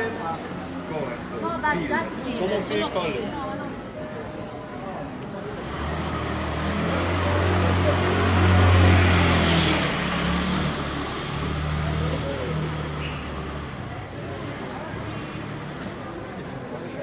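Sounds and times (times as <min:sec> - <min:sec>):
tyres hissing on wet street: 0:05.6 - 0:16.1.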